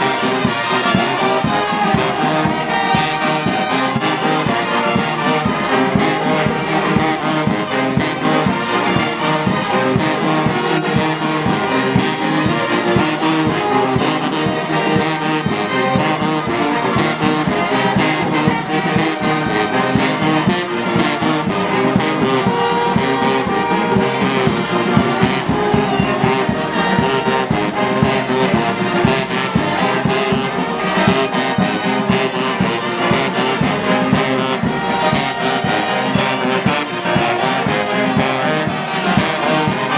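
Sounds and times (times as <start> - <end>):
brass band playing marching music: 0.0 - 39.9.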